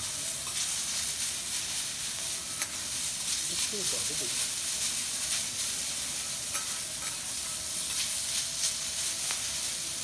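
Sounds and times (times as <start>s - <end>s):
vegetables sizzling on a griddle: 0.0s - 10.0s
metal spatulas scraping a griddle: 6.2s - 8.7s.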